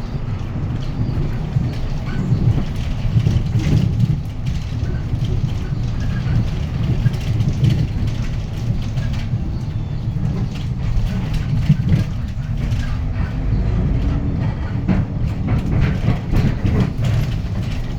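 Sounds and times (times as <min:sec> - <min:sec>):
bus diesel engine drone: 0:00.0 - 0:17.9
interior rattles: 0:00.0 - 0:17.9
road noise: 0:00.0 - 0:17.9.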